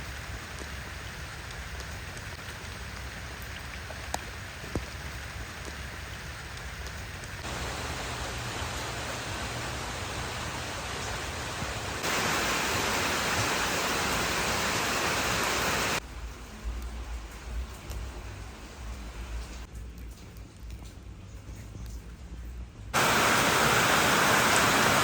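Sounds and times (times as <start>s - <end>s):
heavy rain falling: 0.0s - 19.7s, 23.0s - 25.0s
water drips clicking: 1.4s - 5.0s.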